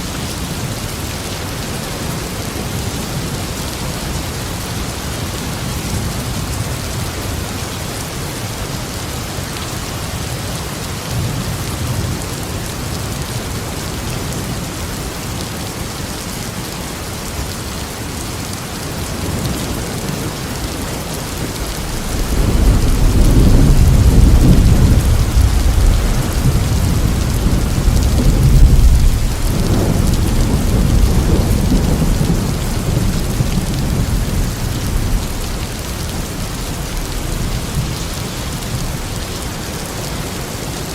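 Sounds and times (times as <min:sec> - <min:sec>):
steady rain falling: 0:00.0 - 0:40.9
low rumble of thunder: 0:19.0 - 0:39.7.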